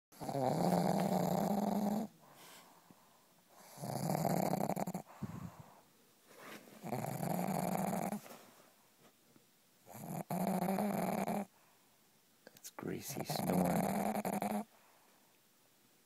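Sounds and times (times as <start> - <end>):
dog snoring: 0.2 - 2.6, 3.5 - 5.8, 6.8 - 8.3, 9.8 - 11.5, 13.1 - 14.7
dog breathing quietly: 0.2 - 8.8.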